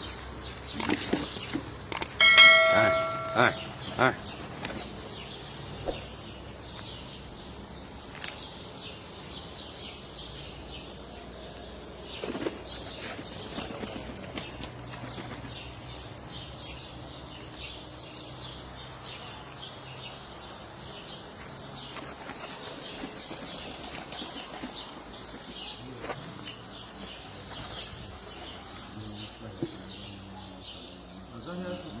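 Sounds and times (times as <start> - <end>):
pigeons flapping wings: 12.0 - 15.9, 21.7 - 25.6.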